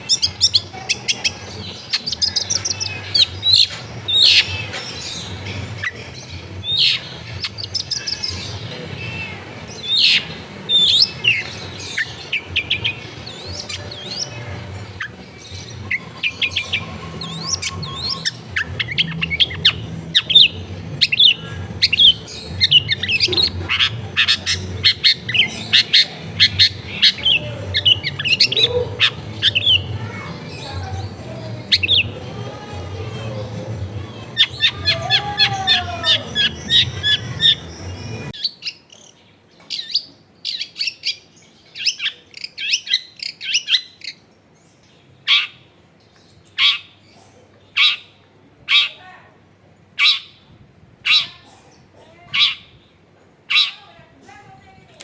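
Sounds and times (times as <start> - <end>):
low background hum: 0.0 - 38.4
bird chattering and calling: 0.0 - 44.3, 45.2 - 45.8, 46.4 - 49.2, 50.0 - 54.0.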